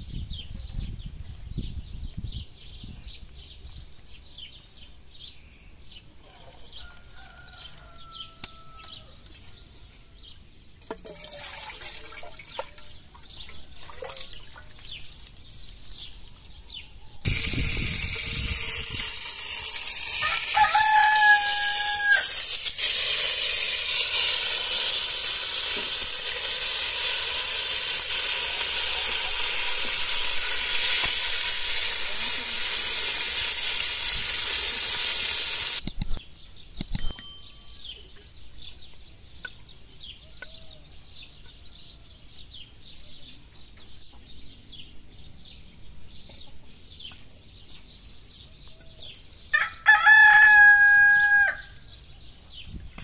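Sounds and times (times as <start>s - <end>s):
small birds chirping: 0.1s - 10.8s, 12.4s - 17.3s, 35.8s - 49.7s, 51.0s - 53.0s
rooster crowing: 6.7s - 9.2s, 20.2s - 22.5s, 49.5s - 51.8s
potato slices sizzling in oil: 17.3s - 35.8s.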